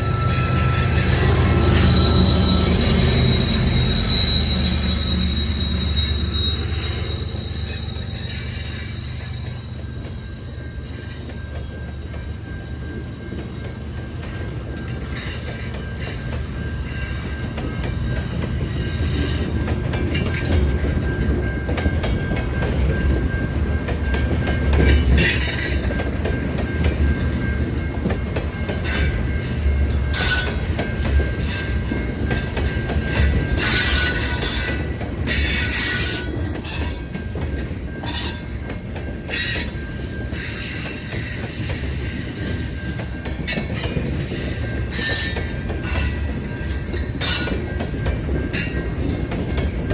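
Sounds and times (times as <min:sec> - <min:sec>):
high-pitched wheel screech: 0:00.0 - 0:09.2
high wheel squeal: 0:00.0 - 0:12.9, 0:28.8 - 0:37.1
train rumbling past: 0:00.0 - 0:49.9.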